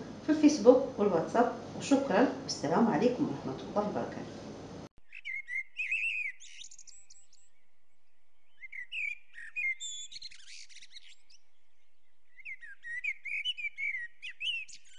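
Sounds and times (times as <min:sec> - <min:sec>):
songbirds chirping and trilling: 0:05.0 - 0:14.9.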